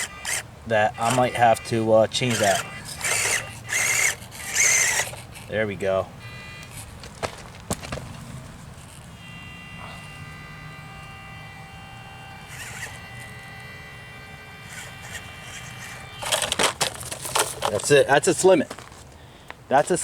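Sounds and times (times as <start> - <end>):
rc car motor whining: 0.0 - 18.5
scraping clatter on rock: 2.2 - 5.5, 6.6 - 9.1, 14.8 - 19.2.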